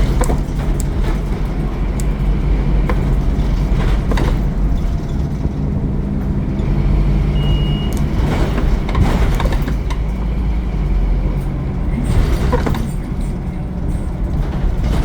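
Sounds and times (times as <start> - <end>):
bus diesel engine running: 0.0 - 15.0
short high beep: 7.4 - 8.0.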